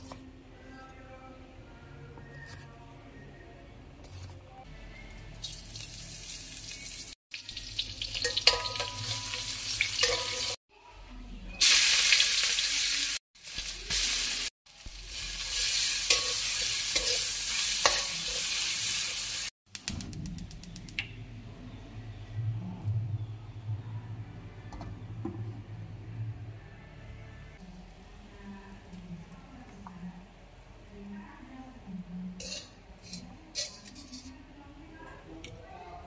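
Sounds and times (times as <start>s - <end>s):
shallots sizzling in hot oil: 5.4s - 10.6s, 11.6s - 19.5s
metal spatula stirring in wok: 8.1s - 10.6s, 15.0s - 19.3s, 32.4s - 34.3s.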